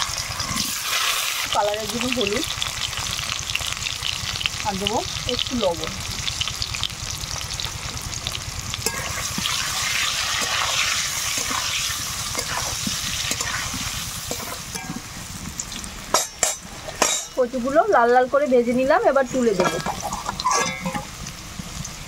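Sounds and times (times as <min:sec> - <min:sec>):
spatula turning food: 0:00.0 - 0:03.8, 0:08.8 - 0:15.1
food sizzling in hot oil: 0:00.0 - 0:22.0.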